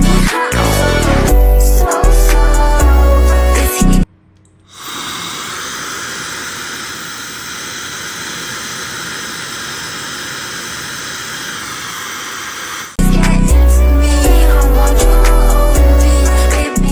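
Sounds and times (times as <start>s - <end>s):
music: 0.0s - 4.1s, 13.0s - 16.9s
hair dryer blowing with motor whine: 4.7s - 13.0s.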